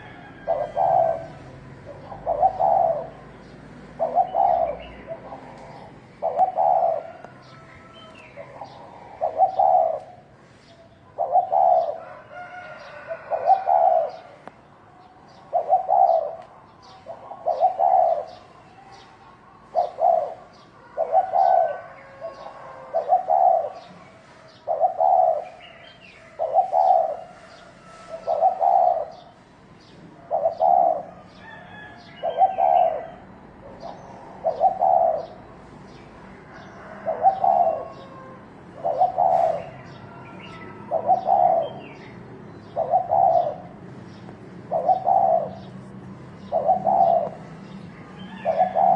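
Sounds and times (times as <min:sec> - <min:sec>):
dove cooing: 0:00.0 - 0:14.5, 0:15.3 - 0:29.4, 0:30.2 - 0:35.7, 0:36.6 - 0:48.9.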